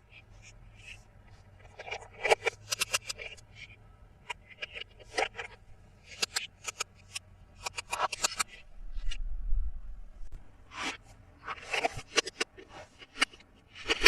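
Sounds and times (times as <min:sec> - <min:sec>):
low rumble: 0:08.6 - 0:10.6.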